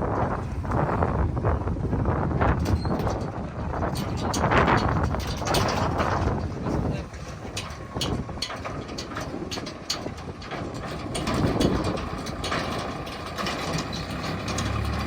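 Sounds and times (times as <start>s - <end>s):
heavy diesel engine running: 0.0s - 15.0s
metal clanks and rattles: 2.0s - 15.0s.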